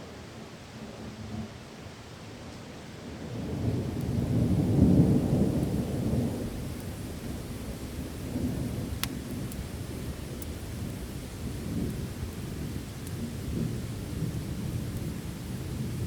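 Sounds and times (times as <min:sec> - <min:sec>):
steady rain: 0:00.0 - 0:16.0
thunder rumble: 0:03.3 - 0:16.0.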